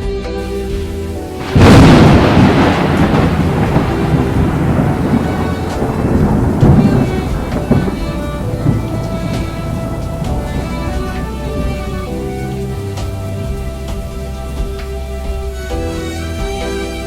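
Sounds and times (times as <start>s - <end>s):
faint eerie music: 0.2s - 17.0s
rain hiss: 0.4s - 17.0s
thunderclap and low rumble: 0.5s - 16.9s.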